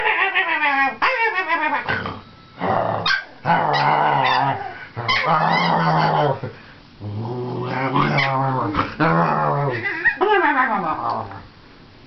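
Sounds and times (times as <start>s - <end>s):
puppy low calls: 7.5s - 11.4s.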